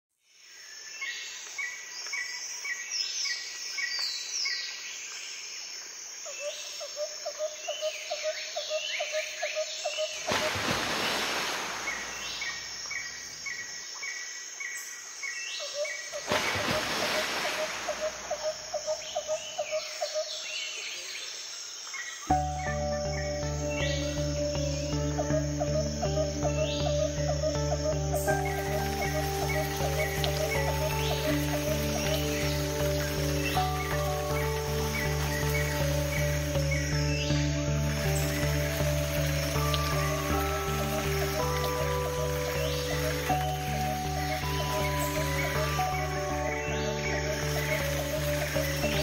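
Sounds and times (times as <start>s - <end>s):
music: 10.2s - 12.4s, 22.3s - 49.0s
birds chirping and calling: 15.2s - 21.1s, 22.0s - 49.0s.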